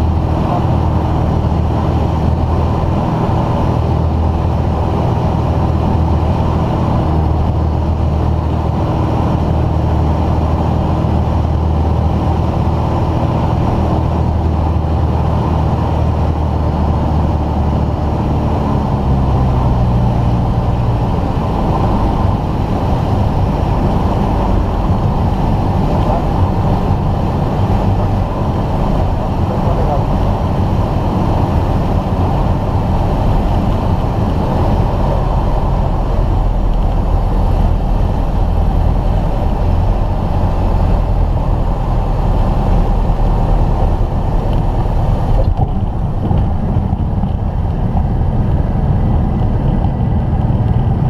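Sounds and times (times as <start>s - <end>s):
aircraft engine and propeller drone: 0.0s - 51.0s.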